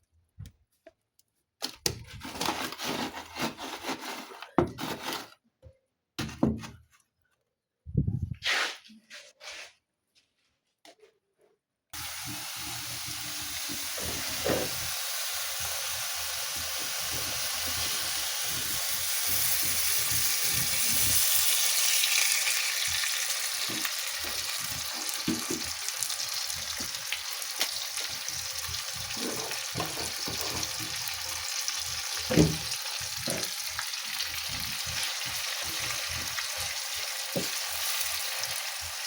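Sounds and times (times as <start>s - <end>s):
food sizzling in a pan: 12.0s - 39.0s.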